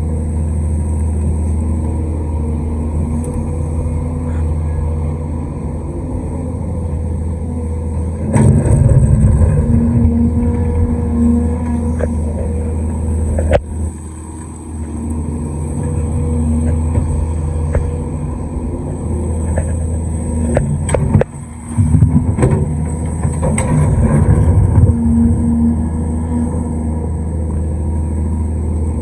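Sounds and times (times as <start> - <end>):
excavator diesel engine running: 0.0 - 29.0
knocks and clanks: 19.4 - 24.9.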